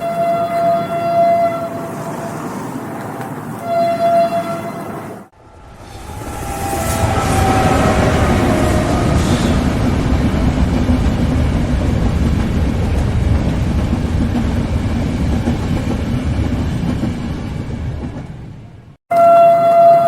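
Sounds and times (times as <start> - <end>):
train rumbling past on rails: 0.0 - 19.0.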